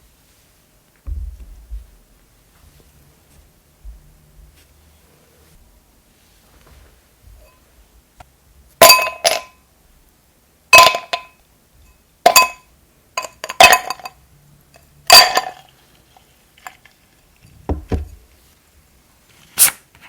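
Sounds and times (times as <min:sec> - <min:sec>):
soft knocks: 0:01.0 - 0:02.0, 0:17.6 - 0:18.2
tableware clinking: 0:08.8 - 0:09.6, 0:10.8 - 0:11.4, 0:12.3 - 0:14.2, 0:15.1 - 0:15.8.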